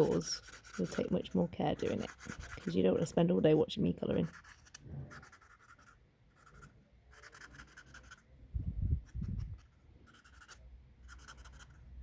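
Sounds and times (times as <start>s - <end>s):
felt-tip pen scribbling on cardboard: 0.0s - 8.2s, 9.1s - 11.8s.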